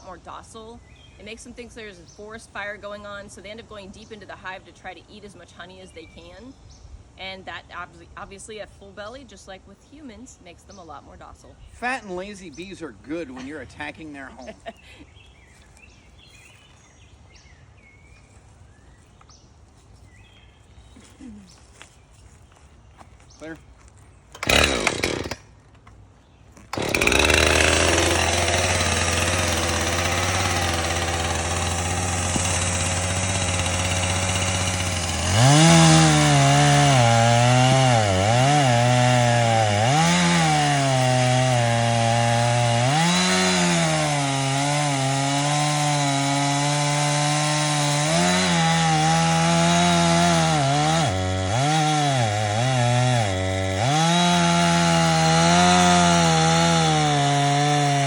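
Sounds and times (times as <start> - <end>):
chainsaw cutting wood: 24.3 - 25.6, 26.6 - 58.0.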